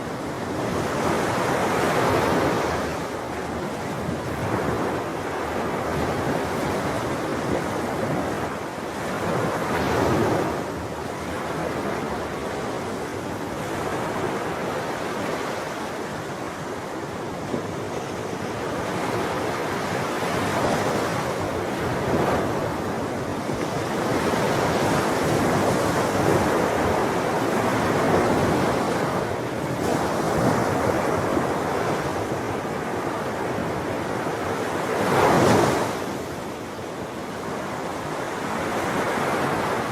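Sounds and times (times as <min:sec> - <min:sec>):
ocean waves breaking on shore: 0:00.0 - 0:39.9
wind noise: 0:00.0 - 0:39.9.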